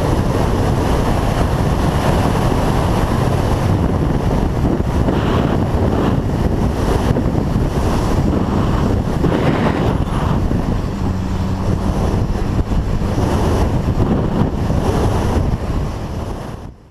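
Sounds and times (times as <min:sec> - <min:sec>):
motorcycle engine running: 0:00.0 - 0:16.9
wind rushing over microphone: 0:00.0 - 0:16.9.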